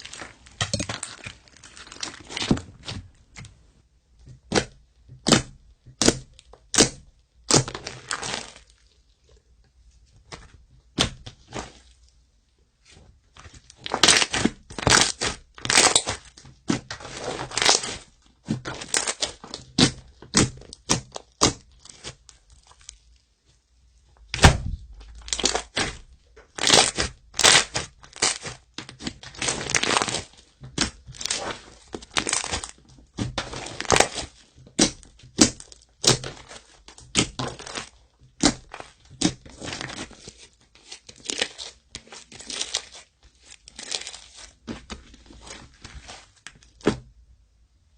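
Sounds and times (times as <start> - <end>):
slime crackling and popping: 4.5 - 9.1, 13.6 - 23.2, 24.2 - 46.9.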